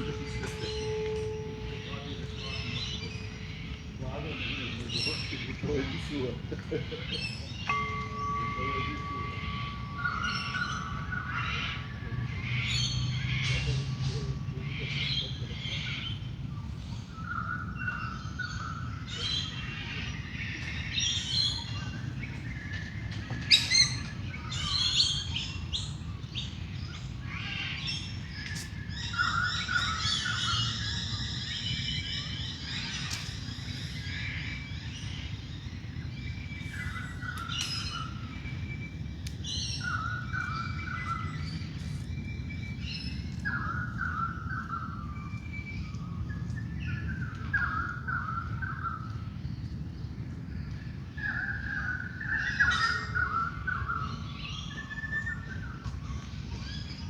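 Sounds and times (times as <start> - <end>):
steady low hum: 0.0 - 52.4
birds singing and calling: 0.0 - 57.0
rapid bird trill: 7.0 - 14.0.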